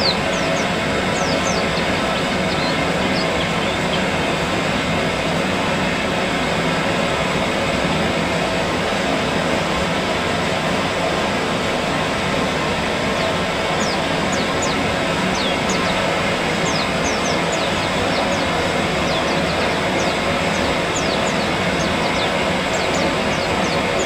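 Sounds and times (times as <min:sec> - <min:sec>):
small birds chirping: 0:00.0 - 0:04.9, 0:13.1 - 0:24.0.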